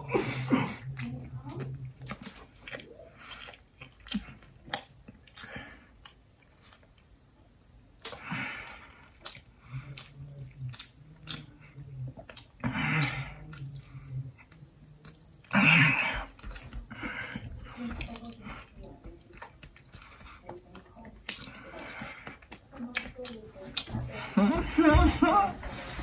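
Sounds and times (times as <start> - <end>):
low hum through full mouth: 0.0 - 26.0
man chewing food: 0.0 - 26.0
wet mouth clicks and smacks: 1.5 - 7.0, 9.2 - 11.5.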